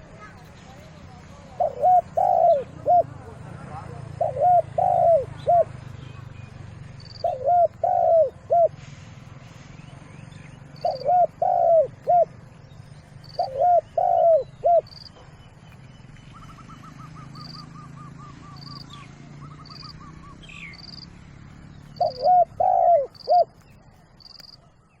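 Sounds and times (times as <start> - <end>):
rapid bird trill: 0.0 - 25.0
small birds chirping: 0.0 - 25.0
dove cooing: 1.1 - 5.9, 7.1 - 8.8, 10.7 - 12.5, 13.2 - 15.3, 21.9 - 23.6.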